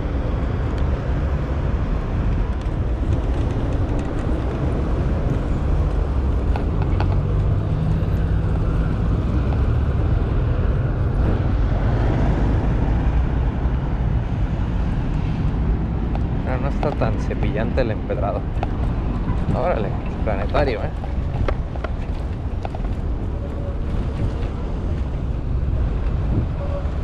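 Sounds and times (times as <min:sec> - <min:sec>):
bicycle tyres rumbling on cobblestones: 0:00.0 - 0:27.0
bicycle clicks and rattles: 0:02.3 - 0:07.5.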